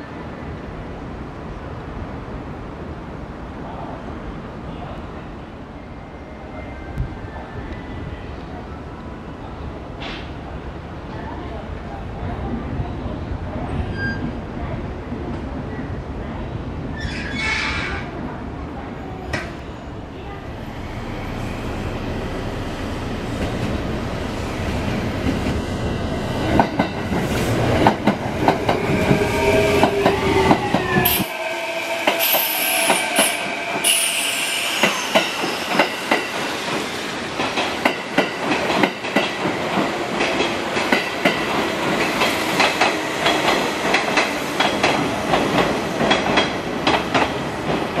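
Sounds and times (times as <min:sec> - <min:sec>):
high brake squeals: 0:13.8 - 0:14.4, 0:29.2 - 0:36.1
electric train rumbling: 0:18.0 - 0:48.0.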